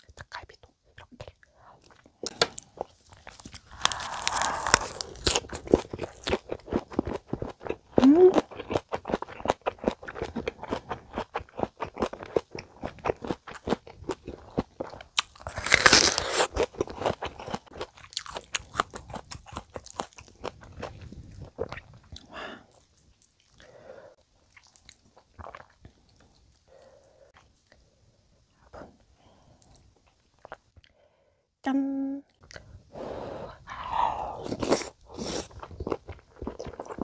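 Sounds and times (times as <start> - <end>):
crisp crunchy chewing: 0.1 - 23.6, 34.2 - 37.0.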